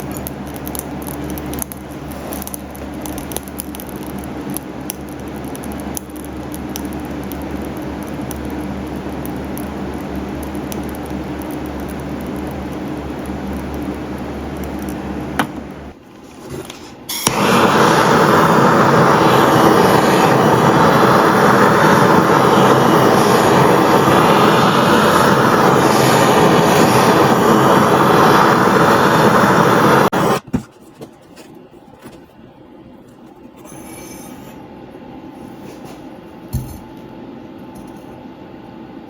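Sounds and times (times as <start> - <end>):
loud steady rushing noise: 17.3 - 30.4.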